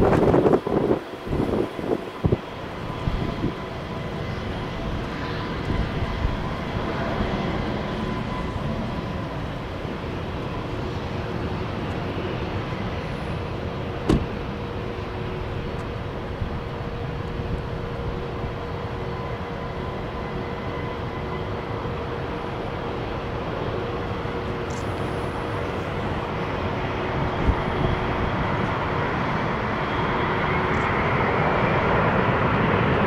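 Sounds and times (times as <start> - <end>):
wind buffeting microphone: 0.0 - 19.3, 26.0 - 33.0
jet engines rushing: 0.0 - 33.0.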